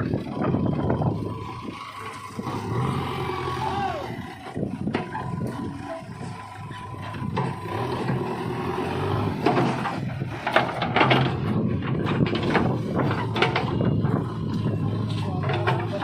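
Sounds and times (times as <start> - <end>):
diesel engine running: 0.0 - 16.0
irregular knocks and clatter: 4.8 - 5.4, 7.0 - 16.0.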